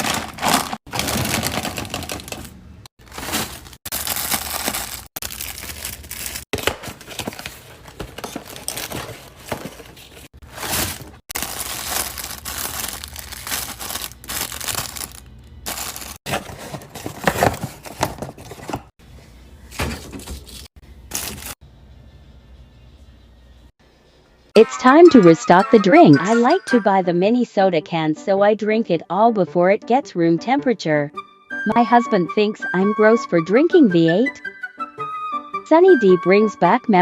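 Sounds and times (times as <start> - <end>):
plastic packaging crinkling: 0.0 - 18.8, 20.5 - 21.6.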